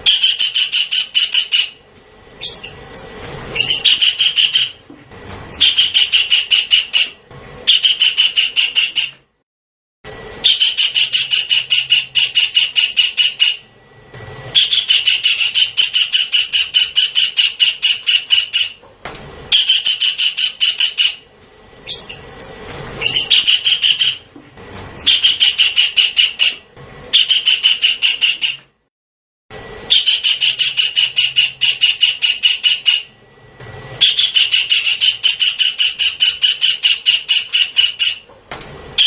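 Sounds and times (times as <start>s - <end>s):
kingfisher harsh rapid calls: 2.4s - 4.8s, 5.5s - 9.1s, 10.4s - 13.6s, 14.6s - 18.8s, 19.5s - 21.2s, 21.8s - 24.3s, 25.0s - 28.6s, 29.9s - 33.1s, 34.0s - 38.2s.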